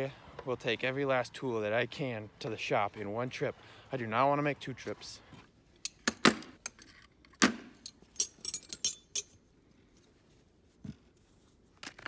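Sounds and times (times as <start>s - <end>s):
metal tools clanking: 5.9s - 9.4s.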